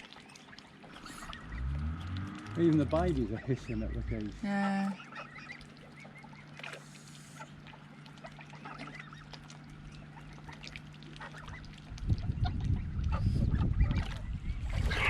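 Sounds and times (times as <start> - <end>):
ducks and geese calling: 0.0 - 15.0
steady low hum: 0.0 - 15.0
loud low rumbling: 1.1 - 4.5, 11.4 - 15.0.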